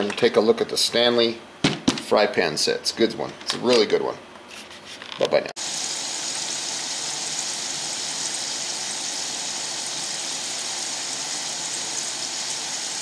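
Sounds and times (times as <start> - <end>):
potatoes sizzling in oil: 5.6 - 13.0.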